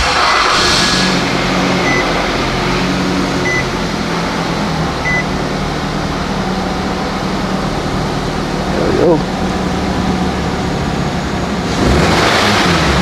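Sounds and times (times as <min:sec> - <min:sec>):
car engine idling: 0:00.0 - 0:13.0
warning chime beeping: 0:01.8 - 0:02.2, 0:03.4 - 0:03.8.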